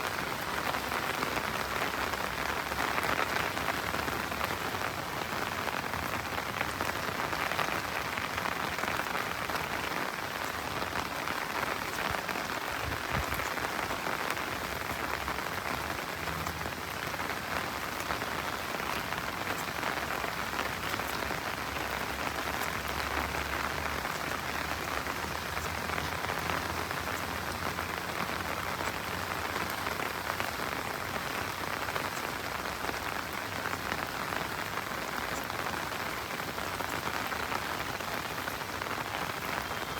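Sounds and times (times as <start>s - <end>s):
rain falling on road and trees: 0.0s - 39.9s.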